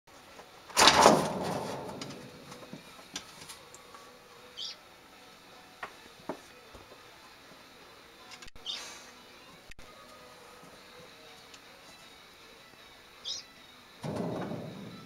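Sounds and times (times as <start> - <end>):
bird chirp: 4.5 - 4.8, 8.6 - 8.8, 13.2 - 13.5.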